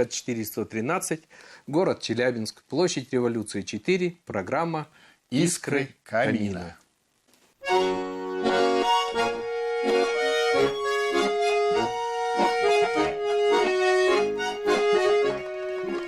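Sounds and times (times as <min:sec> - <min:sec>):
accordion playing folk tune: 0:07.6 - 0:16.0.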